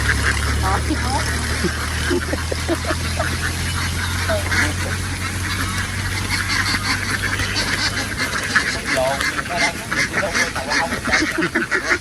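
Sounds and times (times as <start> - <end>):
flock of ducks quacking: 0.0 - 12.0
low engine hum: 0.0 - 12.0.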